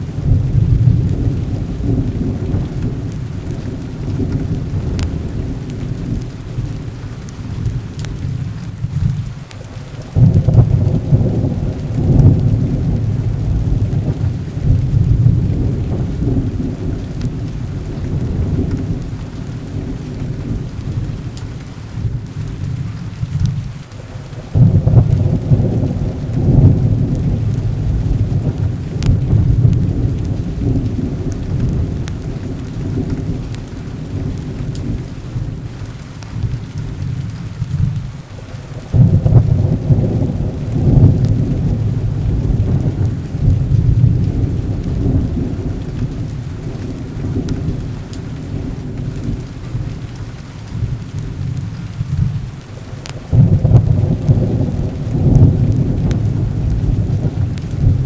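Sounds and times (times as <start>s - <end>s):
deep thunder rumbling: 0.0s - 58.0s
heavy rain: 0.0s - 58.0s.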